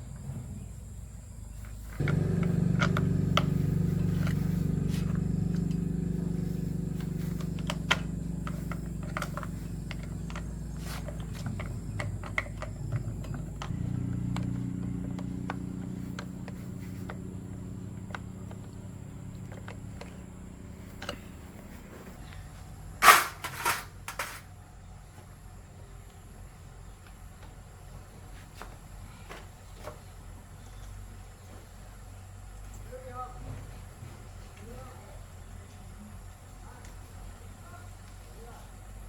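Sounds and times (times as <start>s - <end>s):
sharp clicks and taps: 2.0s - 17.2s
electric motor humming: 2.0s - 22.2s.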